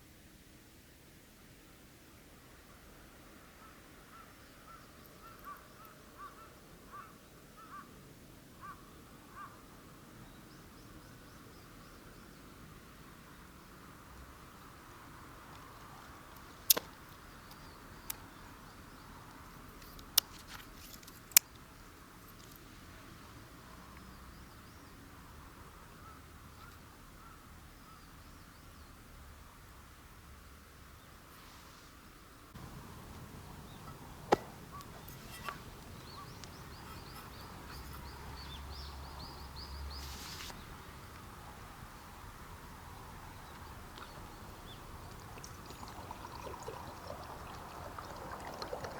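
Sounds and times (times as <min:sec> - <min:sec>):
faint hiss: 0:00.0 - 0:48.9
outdoor background noise: 0:00.0 - 0:48.9
bird chirping: 0:32.6 - 0:41.2, 0:42.8 - 0:48.9.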